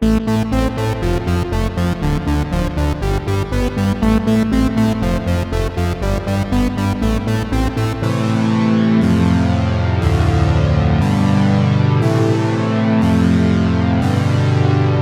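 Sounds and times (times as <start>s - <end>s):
pulsing synthesizer notes: 0.0s - 15.0s
synth bass line: 0.0s - 15.0s.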